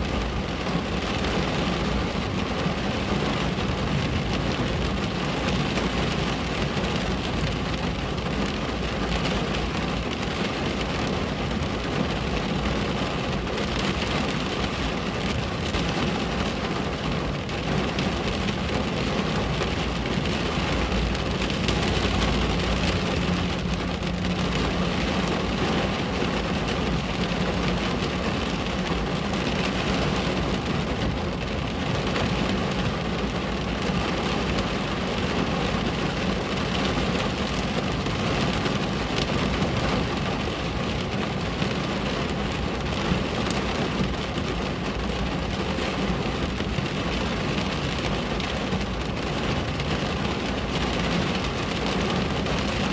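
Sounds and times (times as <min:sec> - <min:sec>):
rain pattering on a window: 0:00.0 - 0:52.9.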